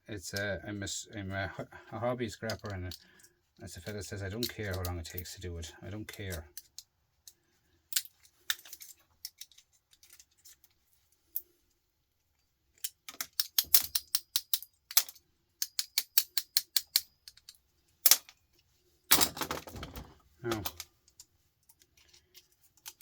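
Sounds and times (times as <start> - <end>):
hand tools clicking and tapping: 12.8 - 18.3.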